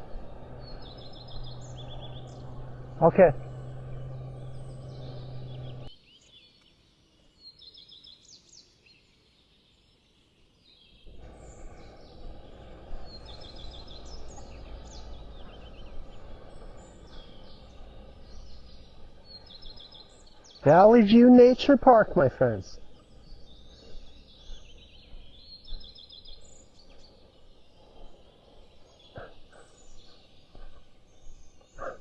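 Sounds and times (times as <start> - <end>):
low rumble: 0.0 - 5.9, 11.0 - 21.3
songbird trilling: 0.0 - 5.9, 11.0 - 32.0.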